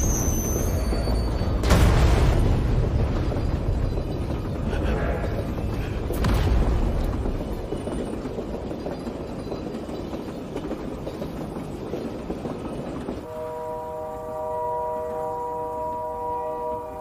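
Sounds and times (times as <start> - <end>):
train rumbling on rails: 0.0 - 17.0
musical drone of held tones: 13.3 - 17.0.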